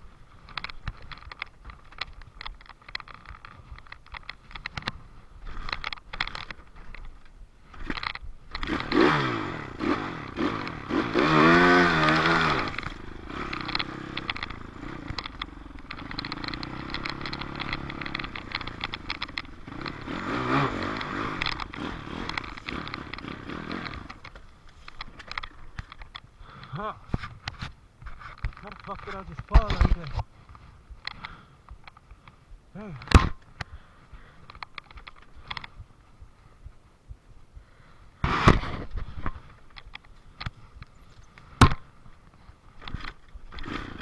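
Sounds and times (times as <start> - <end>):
dirt bike engine revving: 8.5 - 24.5, 43.6 - 44.0
clattering and rattling: 12.0 - 26.2.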